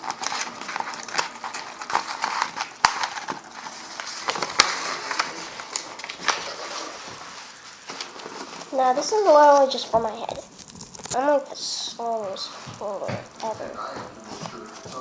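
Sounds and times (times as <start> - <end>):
paper creasing snaps: 0.0 - 11.4
paper rustling and crinkling: 0.0 - 11.4, 12.0 - 15.0.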